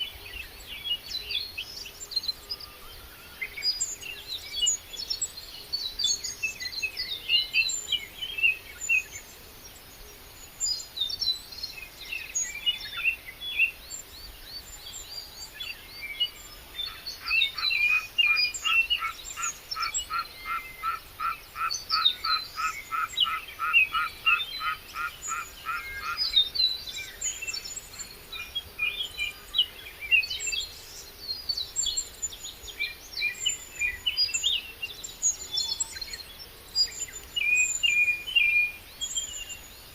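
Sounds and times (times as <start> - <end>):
birds chirping and singing: 10.6 - 39.9.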